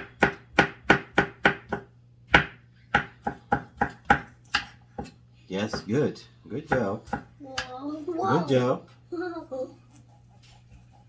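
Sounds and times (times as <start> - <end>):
knife chopping on cutting board: 0.0 - 5.9, 6.7 - 7.7.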